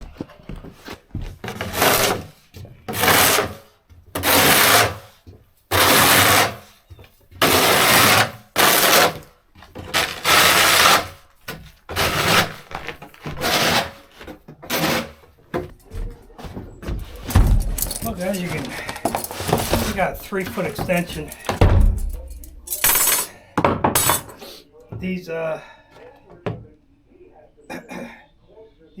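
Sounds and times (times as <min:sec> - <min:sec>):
hand tool rasping: 0:01.5 - 0:06.8, 0:07.4 - 0:15.9, 0:16.8 - 0:23.4.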